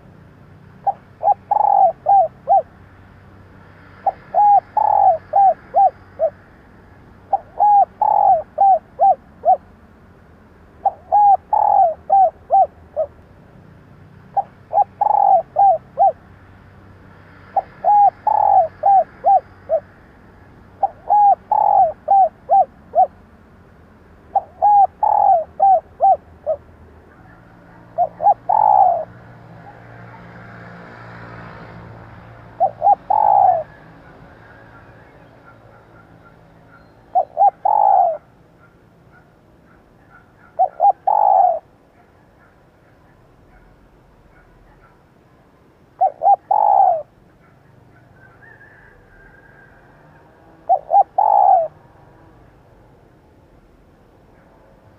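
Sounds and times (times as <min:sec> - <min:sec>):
dove cooing: 0:00.0 - 0:02.8, 0:03.9 - 0:06.4, 0:07.1 - 0:09.8, 0:10.8 - 0:13.2, 0:14.2 - 0:16.4, 0:17.4 - 0:19.9, 0:20.7 - 0:23.2, 0:24.3 - 0:43.7, 0:45.9 - 0:51.8.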